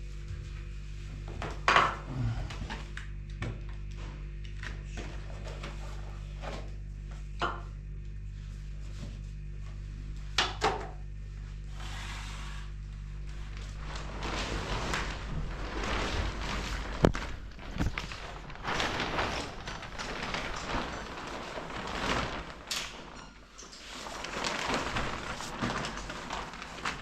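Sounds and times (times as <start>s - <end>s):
low hum: 11.2s - 27.0s.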